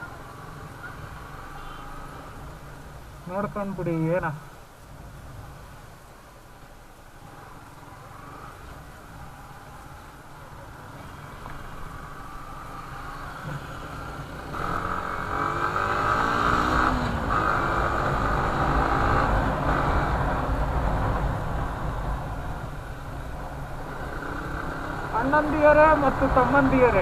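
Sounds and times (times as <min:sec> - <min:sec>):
low traffic rumble: 0:00.0 - 0:27.0
vehicle engines running: 0:07.2 - 0:27.0
vehicle passing close: 0:07.3 - 0:27.0.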